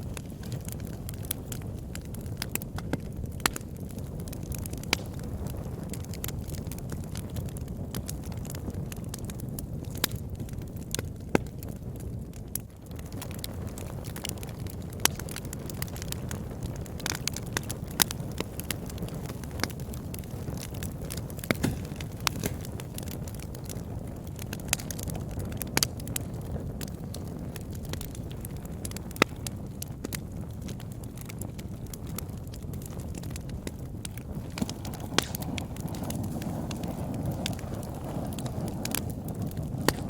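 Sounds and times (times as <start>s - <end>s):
fire flames rushing: 0.0s - 40.0s
logs crackling and popping: 0.0s - 40.0s.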